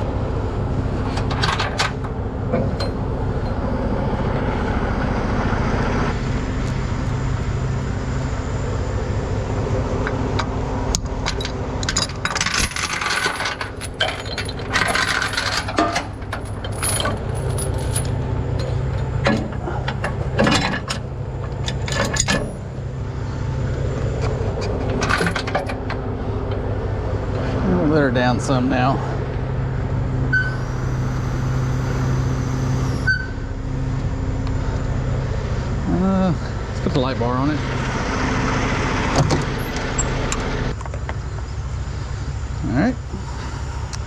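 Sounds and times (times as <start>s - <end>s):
truck engine idling: 0.0s - 44.0s
metal chains clinking: 11.2s - 21.0s.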